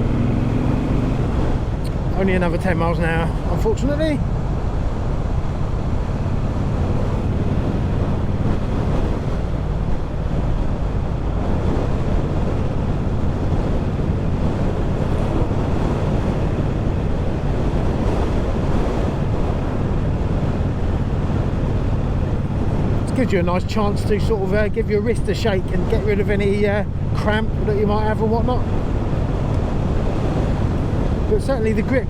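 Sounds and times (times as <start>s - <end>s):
motorcycle engine running: 0.0s - 2.2s, 4.4s - 18.0s
wind rushing over microphone: 0.0s - 32.0s.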